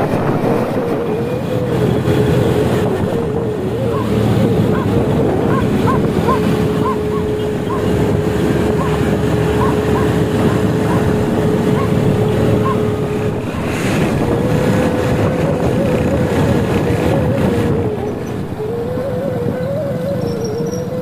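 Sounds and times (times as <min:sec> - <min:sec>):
wind buffeting microphone: 0:00.0 - 0:21.0
motorcycle engine running: 0:00.1 - 0:18.9.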